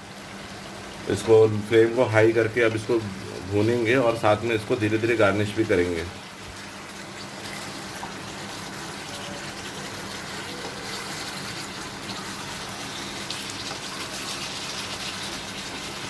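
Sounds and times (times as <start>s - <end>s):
food sizzling in a pan: 5.5s - 16.0s.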